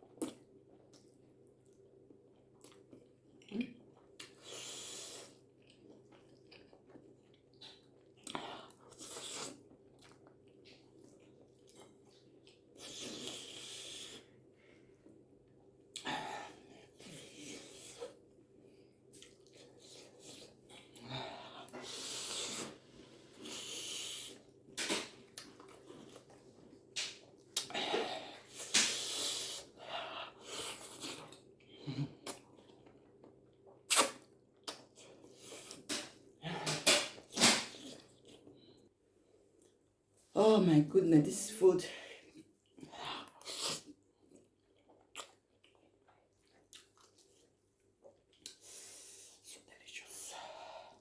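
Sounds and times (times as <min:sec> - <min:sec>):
person chewing noodles: 0:00.0 - 0:36.4, 0:37.1 - 0:39.9, 0:42.1 - 0:49.8
person eating spaghetti: 0:00.0 - 0:39.8, 0:42.0 - 0:49.7
wet mouth clicks: 0:33.9 - 0:34.8.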